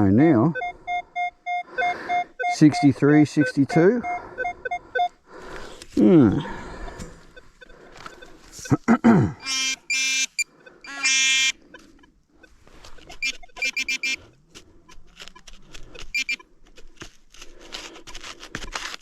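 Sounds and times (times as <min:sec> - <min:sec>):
rapid high-pitched beeps: 0:00.5 - 0:05.2, 0:09.4 - 0:14.3, 0:16.1 - 0:16.4
low buzzy detector tones: 0:09.4 - 0:14.4
digging scrapes: 0:11.7 - 0:19.0.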